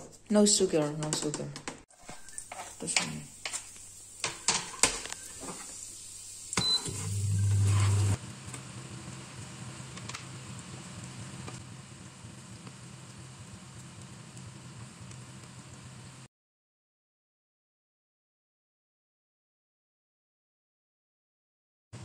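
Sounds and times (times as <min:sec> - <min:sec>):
sausage sizzling in frying pan: 0:01.9 - 0:16.2.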